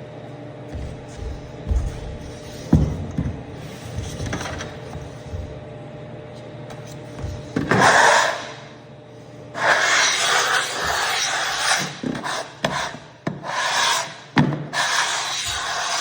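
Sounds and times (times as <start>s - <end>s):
applicator scrubbing wooden floor: 9.6s - 16.0s.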